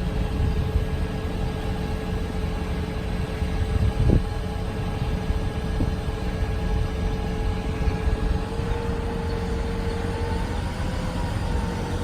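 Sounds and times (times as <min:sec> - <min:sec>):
diesel truck engine rumbling: 0:00.0 - 0:12.0
hydraulic whine: 0:00.0 - 0:12.0.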